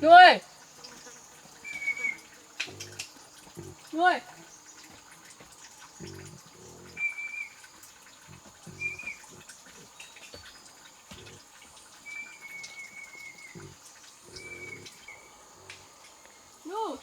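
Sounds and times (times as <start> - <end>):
bird chirping whistles: 1.6 - 2.2.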